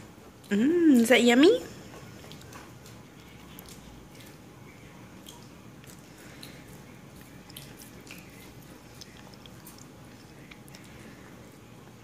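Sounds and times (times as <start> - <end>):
toddler chewing: 1.8 - 11.7.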